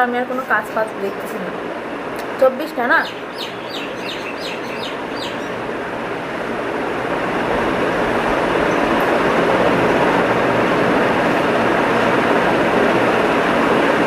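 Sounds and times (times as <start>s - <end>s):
small bird chirping: 3.0s - 5.6s.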